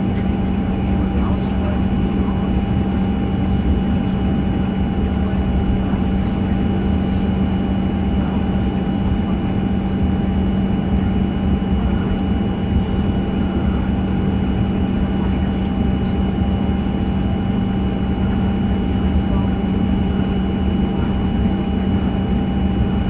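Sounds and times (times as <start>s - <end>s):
aircraft cabin engine drone: 0.0s - 23.0s
constant high engine tones: 0.0s - 23.0s.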